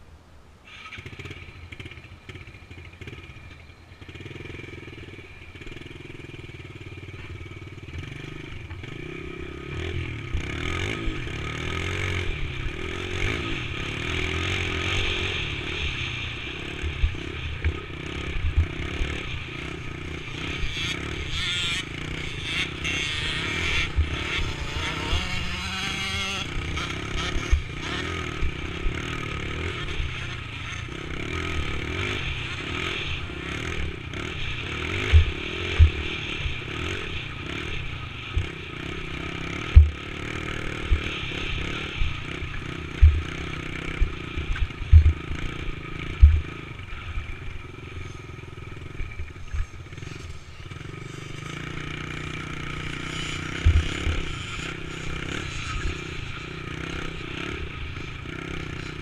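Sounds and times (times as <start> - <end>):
dirt bike engine running: 0.7 - 59.0
low thumps on microphone: 44.9 - 45.2.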